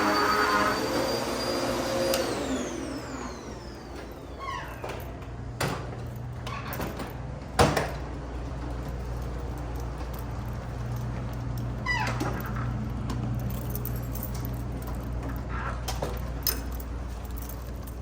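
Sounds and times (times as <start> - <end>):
vacuum cleaner motor whine: 0.0 - 5.3.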